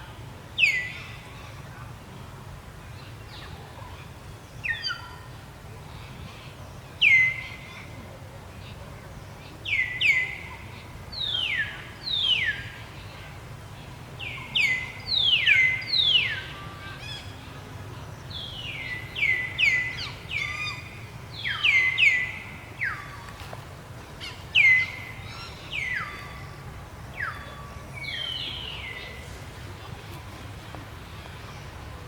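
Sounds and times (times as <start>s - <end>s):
birds chirping: 8.6s - 23.5s, 24.1s - 32.0s.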